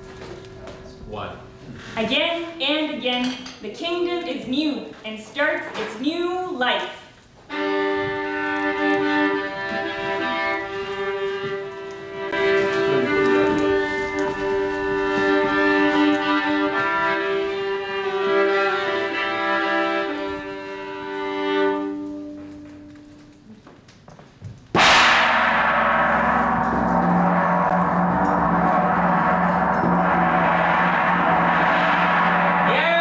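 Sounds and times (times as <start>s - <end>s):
bowed string instrument: 7.5s - 23.4s, 24.8s - 33.0s.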